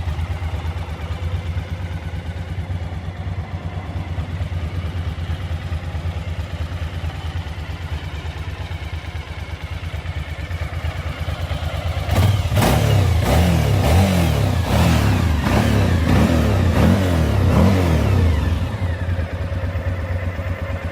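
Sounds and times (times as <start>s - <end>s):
motorcycle engine idling: 0.0s - 20.9s
quick throttle revs: 12.1s - 18.9s.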